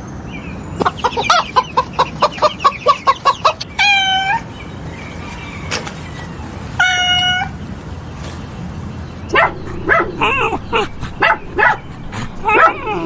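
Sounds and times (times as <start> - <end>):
dog barking in high yips: 9.3 - 11.8, 12.4 - 13.0.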